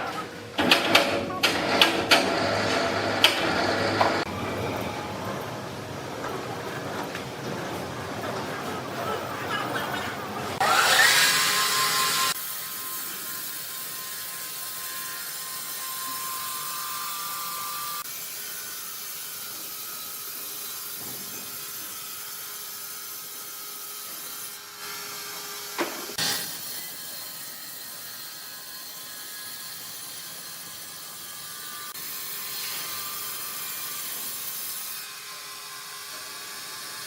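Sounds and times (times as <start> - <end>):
wood machinery clatter and hum: 0.0 - 9.4.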